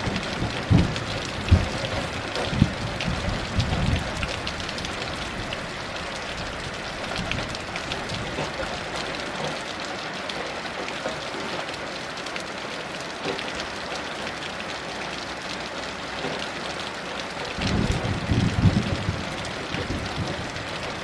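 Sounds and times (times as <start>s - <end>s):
low thunder rumbling: 0.0s - 8.7s, 17.5s - 21.0s
heavy rain falling: 0.0s - 21.0s.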